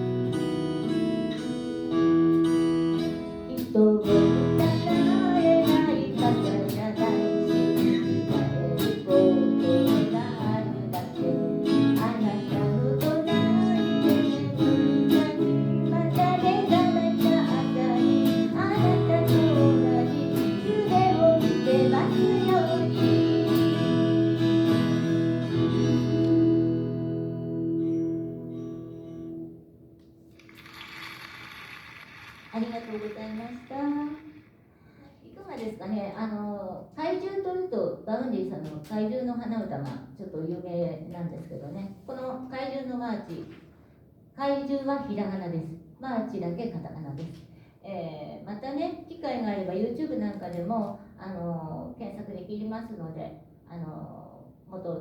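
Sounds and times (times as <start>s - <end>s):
acoustic guitar strumming: 0.0s - 31.4s
person singing: 3.6s - 23.6s.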